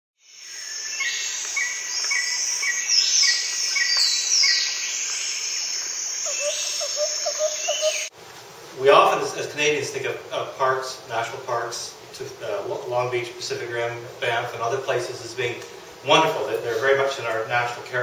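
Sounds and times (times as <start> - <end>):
high insect trill: 0.2 - 8.1
whistled bird calls: 6.2 - 8.1.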